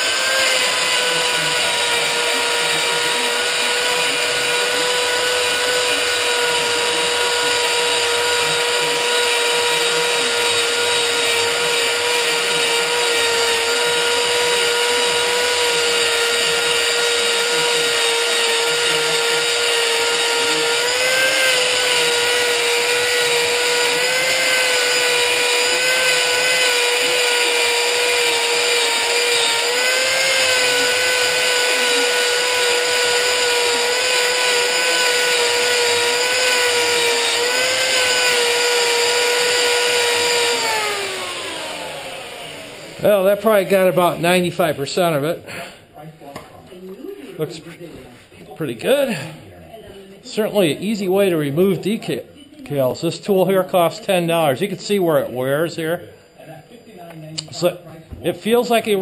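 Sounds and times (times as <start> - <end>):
power tool high whine: 0.0 - 45.2.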